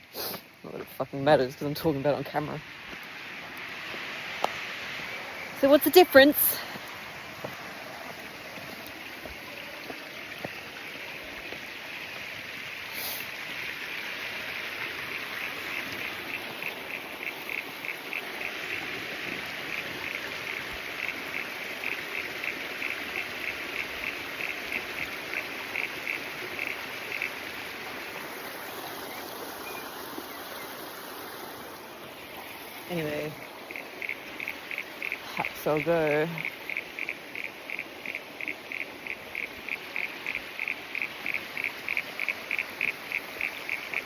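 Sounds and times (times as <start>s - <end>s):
outdoor noise: 0.0s - 44.0s
rapid repeated animal chirps: 15.1s - 18.9s, 19.7s - 27.4s, 33.7s - 44.0s.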